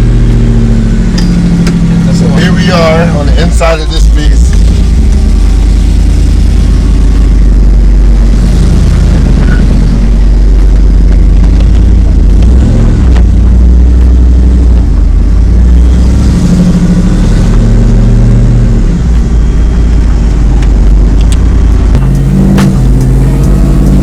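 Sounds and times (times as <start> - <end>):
loud truck engine revving: 0.0 - 24.0.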